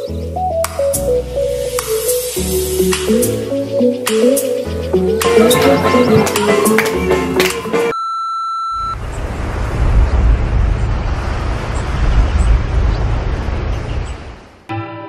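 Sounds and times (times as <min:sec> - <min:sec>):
electronic beep: 0:07.9 - 0:09.0
low rumbling noise: 0:08.8 - 0:14.7.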